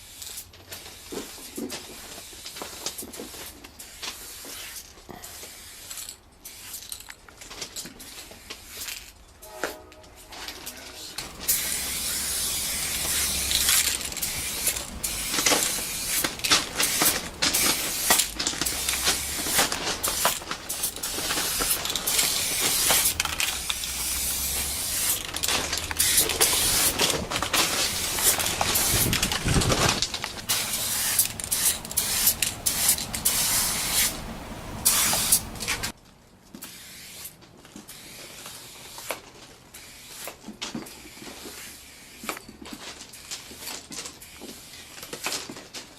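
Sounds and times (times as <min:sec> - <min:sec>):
aerosol spray can hissing: 0:11.2 - 0:29.2, 0:30.4 - 0:35.9.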